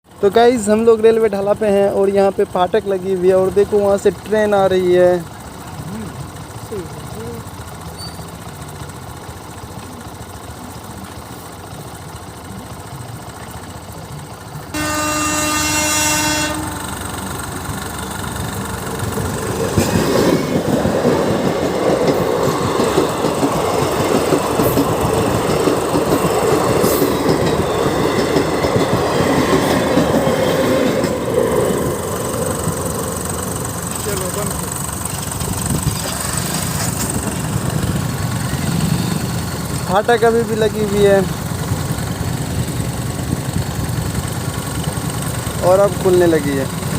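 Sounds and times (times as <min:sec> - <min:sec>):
train rumbling past: 0:00.1 - 0:46.9
wheels clattering over rails: 0:00.3 - 0:46.9
train horn blast: 0:14.7 - 0:17.0.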